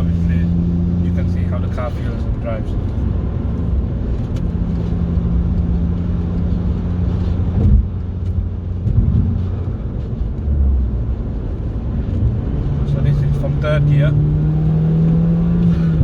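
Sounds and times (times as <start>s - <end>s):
car engine droning: 0.0s - 16.0s
road noise: 0.0s - 16.0s
short thump: 7.5s - 9.6s.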